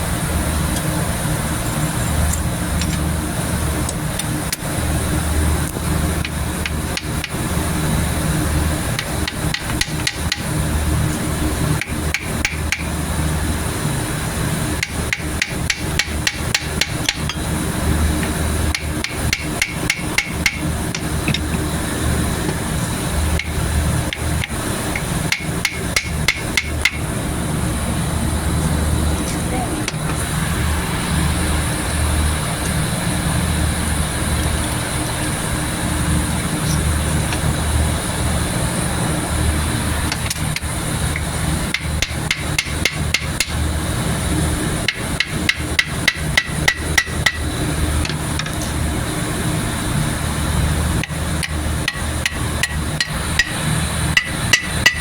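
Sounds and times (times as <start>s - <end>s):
steady low hum: 0.0s - 55.0s
hammer blows on metal: 14.8s - 17.5s, 18.2s - 21.6s, 23.4s - 27.1s, 51.0s - 55.0s.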